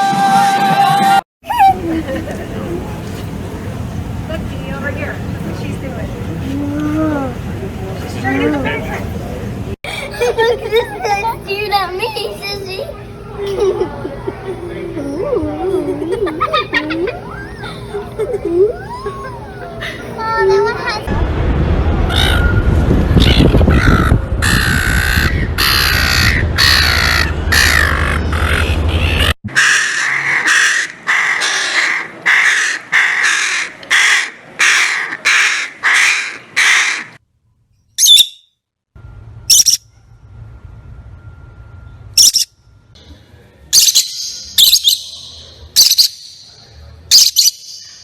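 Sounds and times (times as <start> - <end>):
low background rumble: 1.4 - 29.4
bird harsh calls: 38.0 - 38.4.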